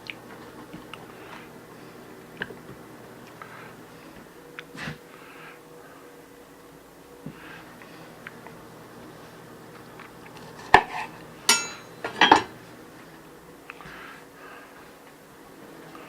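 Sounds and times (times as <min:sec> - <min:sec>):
dishes clinking: 0:10.7 - 0:12.6
dish knocking: 0:11.5 - 0:12.6.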